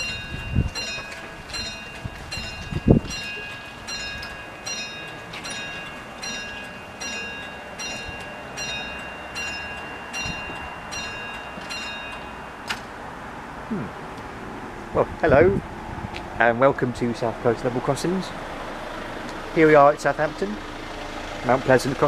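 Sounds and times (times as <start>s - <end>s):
crossing alarm bell ringing: 0.0s - 12.7s.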